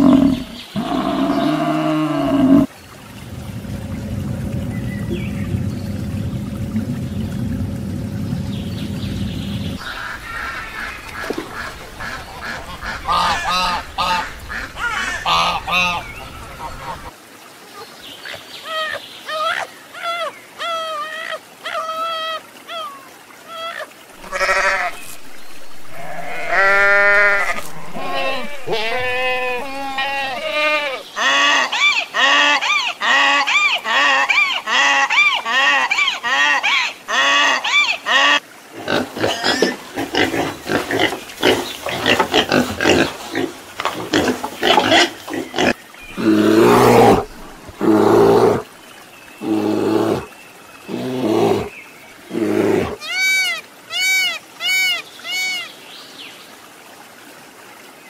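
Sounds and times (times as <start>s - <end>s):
bear growls: 0.0s - 2.7s, 38.8s - 48.6s
donkey braying: 25.8s - 31.5s.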